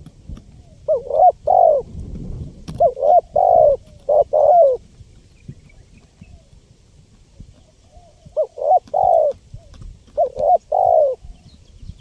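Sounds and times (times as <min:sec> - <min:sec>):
dove cooing: 0:00.4 - 0:02.0, 0:02.7 - 0:04.8, 0:07.4 - 0:11.5.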